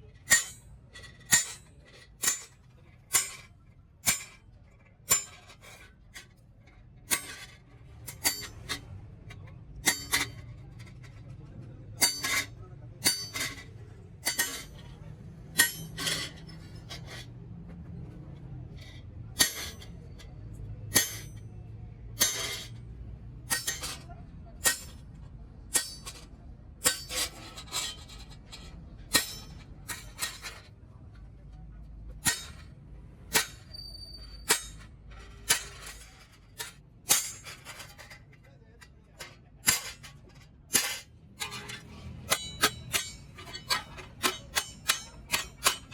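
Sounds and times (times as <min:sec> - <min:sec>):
hammer on sheet metal: 0:00.3 - 0:00.6, 0:01.3 - 0:04.4, 0:05.1 - 0:05.5, 0:08.1 - 0:08.8, 0:09.4 - 0:10.4, 0:12.0 - 0:13.6, 0:14.2 - 0:16.5, 0:19.3 - 0:20.1, 0:20.9 - 0:22.8, 0:23.5 - 0:26.2, 0:26.8 - 0:27.3, 0:29.1 - 0:30.6, 0:32.2 - 0:32.7, 0:33.3 - 0:38.0, 0:39.5 - 0:45.9.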